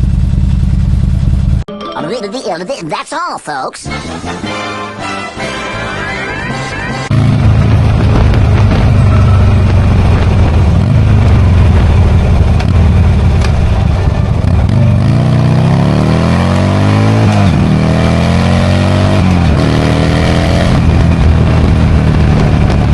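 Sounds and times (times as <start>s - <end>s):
motorcycle engine accelerating: 0.0s - 1.7s, 6.7s - 22.9s.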